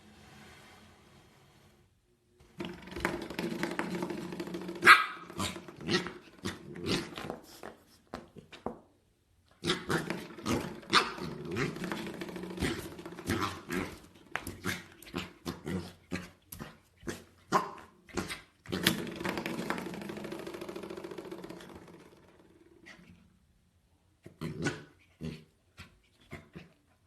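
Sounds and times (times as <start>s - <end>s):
dog growling: 2.6s - 7.4s, 9.6s - 19.7s
dog barking and yelping: 4.8s - 7.0s, 10.9s - 11.4s.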